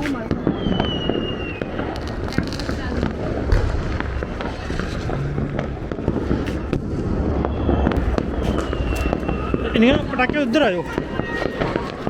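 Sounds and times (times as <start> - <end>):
firecrackers popping: 0.0 - 12.0
sharp firework bangs: 0.0 - 12.0
steady low rumble: 3.1 - 11.2.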